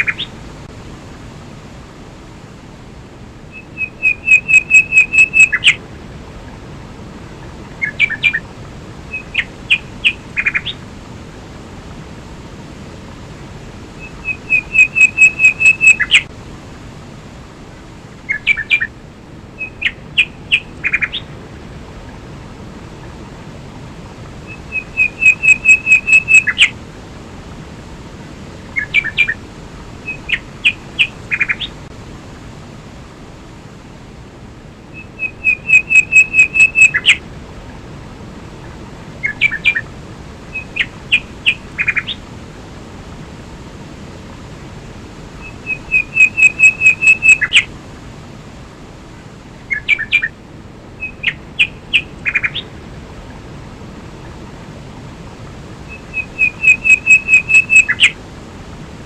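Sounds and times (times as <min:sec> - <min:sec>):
songbird singing: 0:00.0 - 0:00.5, 0:03.3 - 0:10.9, 0:13.6 - 0:16.3, 0:18.1 - 0:26.8, 0:28.6 - 0:31.9, 0:34.8 - 0:42.3, 0:45.3 - 0:47.8, 0:49.5 - 0:55.1, 0:55.8 - 0:58.2
waterfall rushing: 0:00.0 - 0:59.0.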